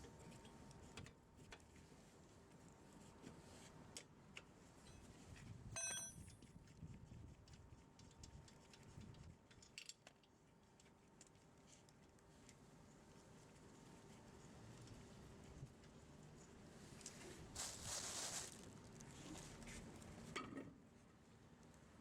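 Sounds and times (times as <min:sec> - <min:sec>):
metal tools clicking and knocking: 0:05.8 - 0:06.3
short metallic ring: 0:05.8 - 0:06.3.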